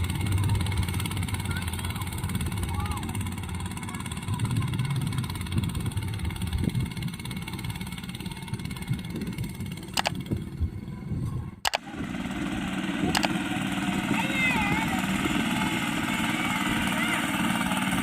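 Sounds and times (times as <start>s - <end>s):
small engine running: 0.0s - 18.0s
sharp clicks: 9.8s - 10.3s, 11.6s - 11.9s, 13.1s - 13.4s.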